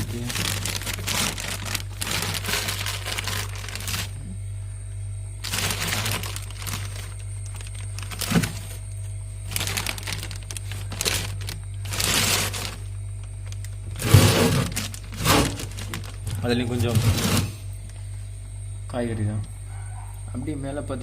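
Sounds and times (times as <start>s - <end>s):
plastic bags rustling: 0.0s - 4.2s, 5.4s - 17.6s.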